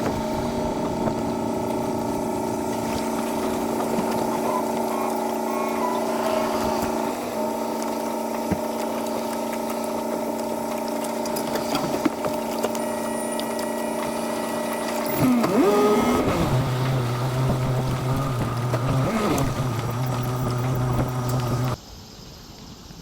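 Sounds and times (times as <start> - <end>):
gliding pitch sweep: 0.0 - 8.3
mechanical hum of held tones: 0.0 - 21.8.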